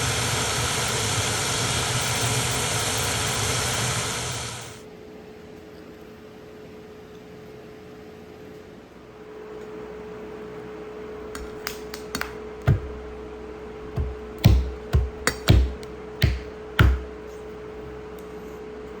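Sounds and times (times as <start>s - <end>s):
steady hum: 0.0s - 4.8s, 10.1s - 19.0s
sharp knocks and thuds: 11.4s - 13.2s, 13.9s - 17.2s.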